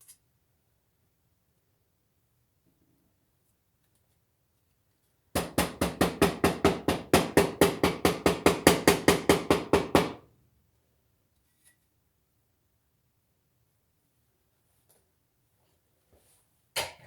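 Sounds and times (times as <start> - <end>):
knife chopping on cutting board: 5.4 - 10.2.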